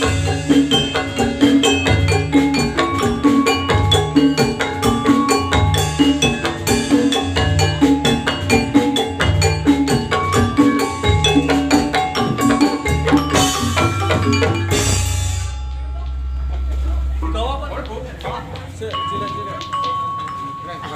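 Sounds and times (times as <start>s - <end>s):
driving drum beat: 0.0s - 20.0s
gamelan metallophones ringing: 0.0s - 20.9s
low ringing tone: 10.3s - 18.2s.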